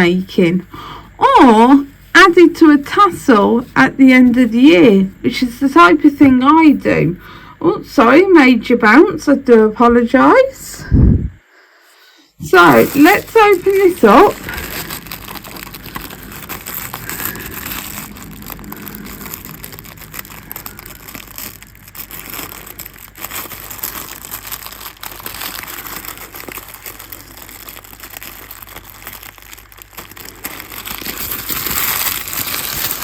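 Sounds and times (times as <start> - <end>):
packaging rustling and crinkling: 12.4 - 33.0.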